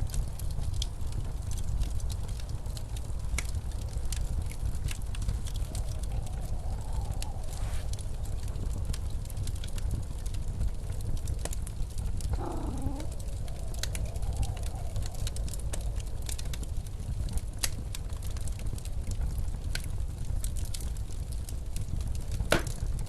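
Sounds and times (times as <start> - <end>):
wood fire crackling and popping: 0.0 - 23.0
blizzard wind rushing: 5.1 - 9.3.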